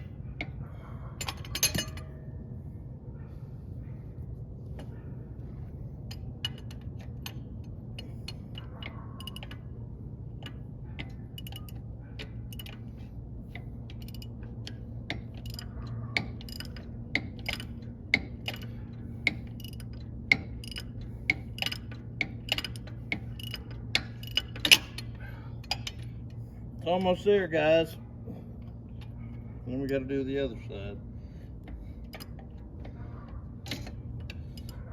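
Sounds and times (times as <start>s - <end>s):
steady low hum: 0.0s - 34.9s
ratchet wrench clicking: 6.1s - 9.7s, 10.4s - 27.2s, 31.6s - 34.9s.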